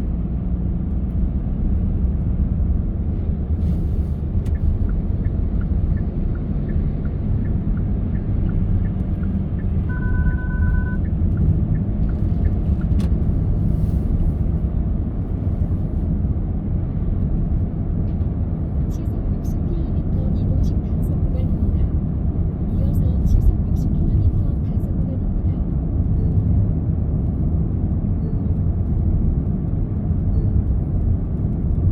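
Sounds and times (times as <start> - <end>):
car road and engine rumble: 0.0 - 31.9
regular light ticks: 4.4 - 10.0
two-tone electronic beep: 8.1 - 11.1.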